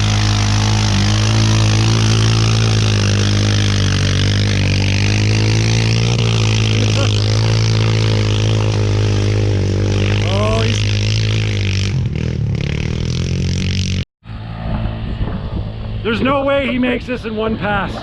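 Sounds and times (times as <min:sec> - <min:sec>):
quad engine running steadily: 0:00.0 - 0:14.0.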